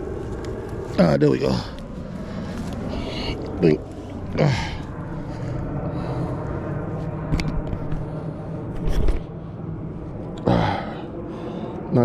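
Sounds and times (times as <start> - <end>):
low motor hum: 0.0 - 12.0
vocal grunt: 4.3 - 4.8, 10.4 - 11.0.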